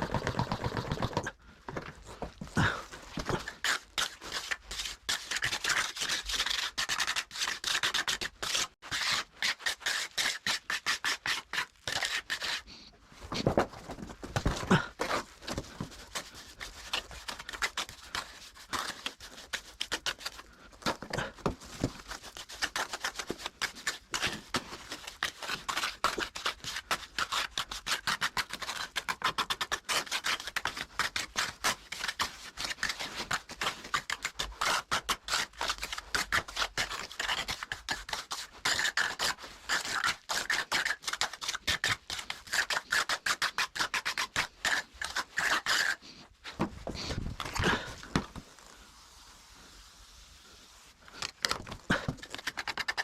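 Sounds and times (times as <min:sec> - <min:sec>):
trowel scraping wet mortar: 0:03.2 - 0:12.8, 0:22.0 - 0:46.2.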